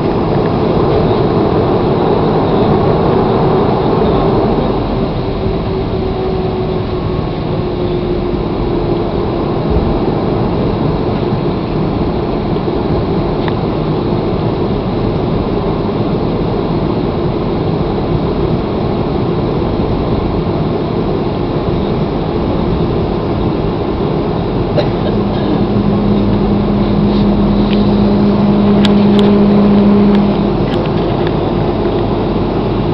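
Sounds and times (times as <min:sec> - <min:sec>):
airliner cabin engine noise: 0:00.0 - 0:32.9.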